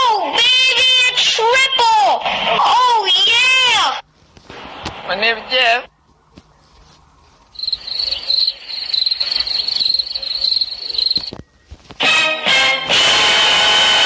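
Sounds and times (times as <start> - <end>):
crickets chirping: 5.9 - 12.0.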